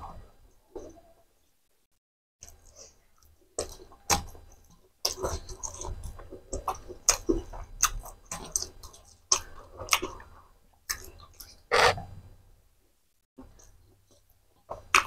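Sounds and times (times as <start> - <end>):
wet chewing: 2.4 - 12.1, 13.4 - 15.0.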